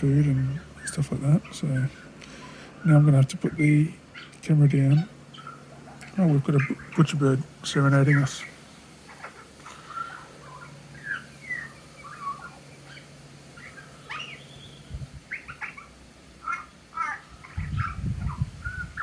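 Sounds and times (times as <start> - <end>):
bird singing whistled notes: 10.0 - 15.9.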